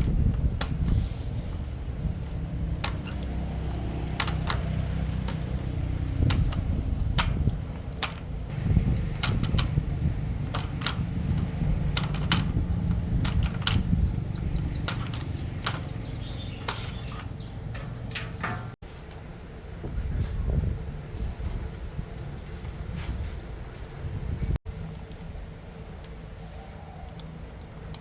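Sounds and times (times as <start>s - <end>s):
sharp light clicks: 0.0s - 17.3s
machine humming: 0.0s - 18.7s.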